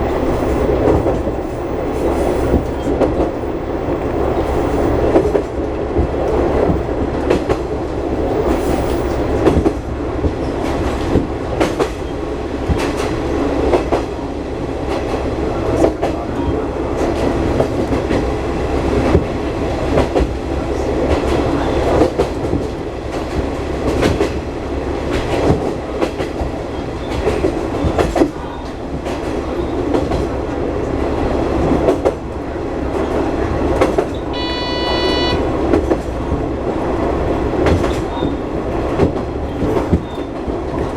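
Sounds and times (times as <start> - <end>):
wheels clacking over rail joints: 0.0 - 14.2
railcar engine hum: 0.0 - 40.9
short electronic beep: 34.3 - 35.4.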